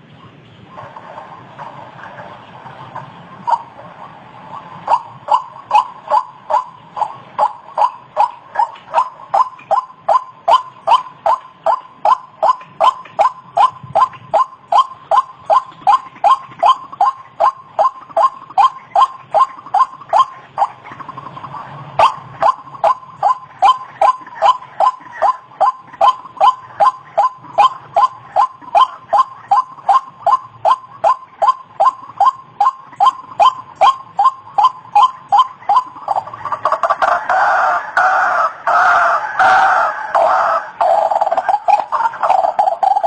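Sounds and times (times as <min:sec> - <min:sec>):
waterhen calling: 0:00.0 - 0:43.0.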